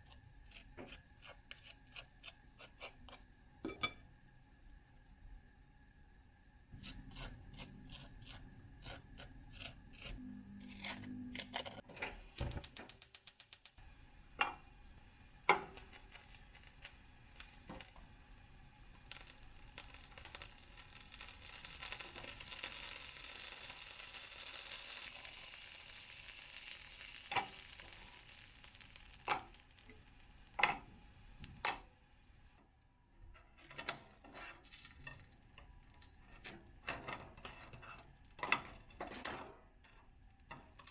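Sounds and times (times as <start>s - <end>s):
food sizzling in a frying pan: 19.0s - 31.4s.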